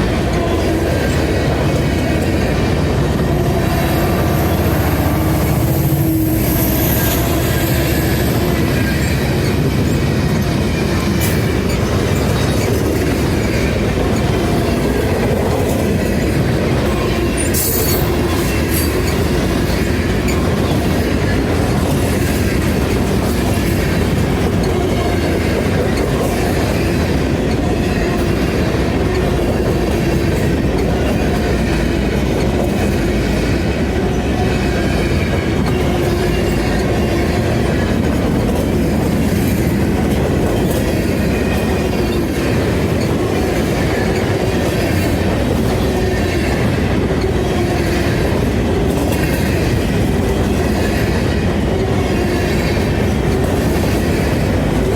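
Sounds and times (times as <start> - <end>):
train cars rolling past: 0.0 - 54.9
high wheel squeal: 3.1 - 10.1, 17.3 - 20.8.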